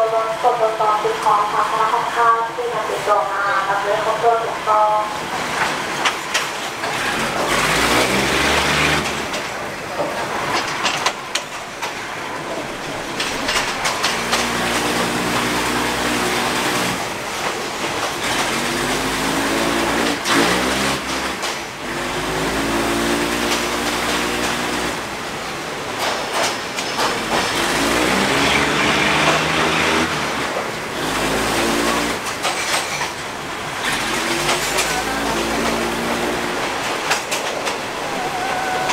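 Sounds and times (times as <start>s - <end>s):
railcar rolling rush: 0.0s - 38.9s
diesel engine hum: 3.0s - 26.0s, 27.0s - 38.9s
wheel clacks: 5.4s - 22.1s, 25.8s - 38.9s.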